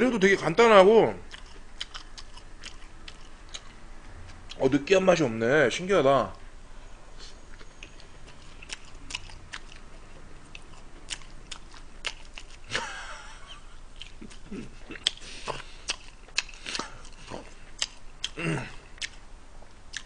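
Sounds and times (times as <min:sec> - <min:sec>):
wet chewing mouth clicks: 0:01.2 - 0:03.8, 0:07.5 - 0:09.9, 0:10.5 - 0:12.7, 0:14.0 - 0:19.2.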